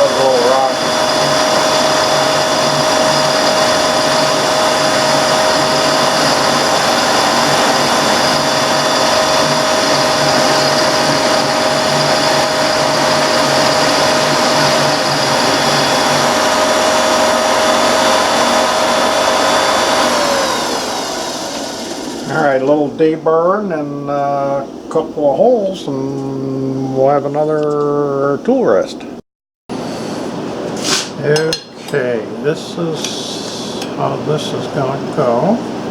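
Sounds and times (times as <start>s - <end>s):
mini mill whining: 0.0s - 22.7s.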